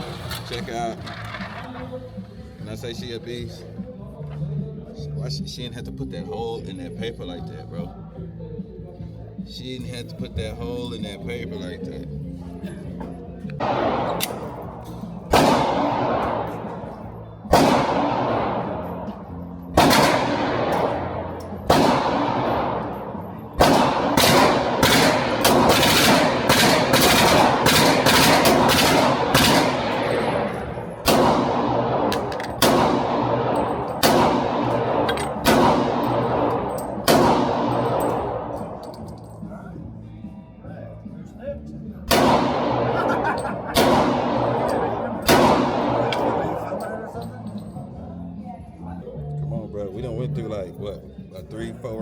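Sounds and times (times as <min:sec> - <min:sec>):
pistol shots with reverberant decay: 0:13.5 - 0:39.3, 0:42.1 - 0:47.2.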